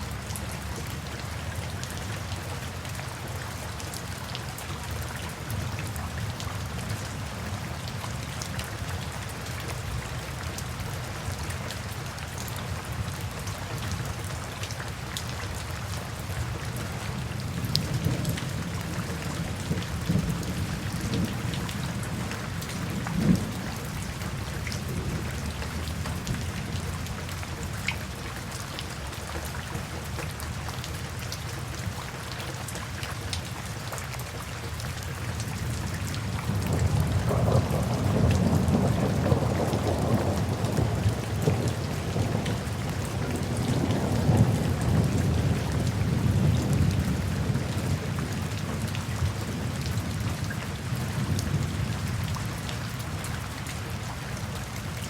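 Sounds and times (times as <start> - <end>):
steady rain falling: 0.0 - 55.0
low rumble of thunder: 17.2 - 27.8, 35.8 - 53.4.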